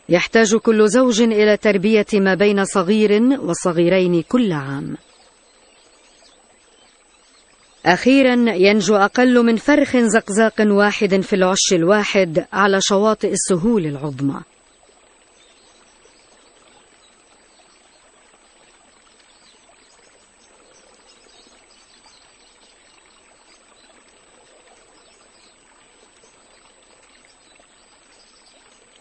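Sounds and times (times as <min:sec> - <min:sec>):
faint water-like hiss: 0:03.8 - 0:08.2, 0:14.1 - 0:29.0.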